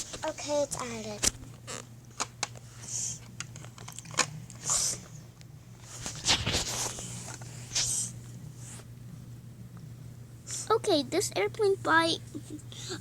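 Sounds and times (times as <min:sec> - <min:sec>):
short hissing sounds: 0:07.6 - 0:08.2.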